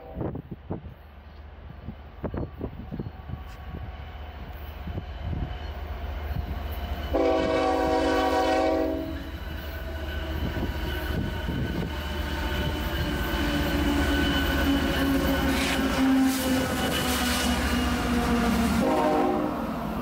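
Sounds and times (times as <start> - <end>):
diesel locomotive engine rumble: 0.0 - 20.0
locomotive air horn blast: 7.1 - 9.2, 18.7 - 19.7.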